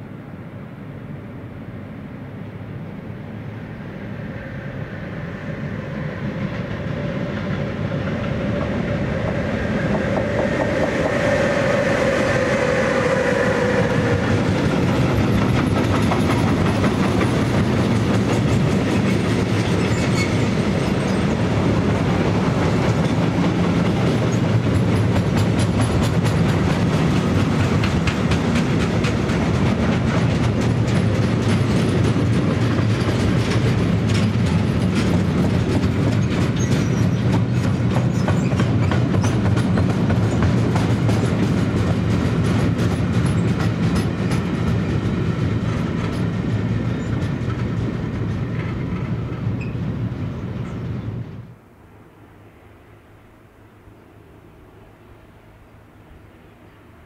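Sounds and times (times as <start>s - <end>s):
locomotive whine: 0.8s - 57.0s
train wheels clickety-clack: 5.9s - 51.0s.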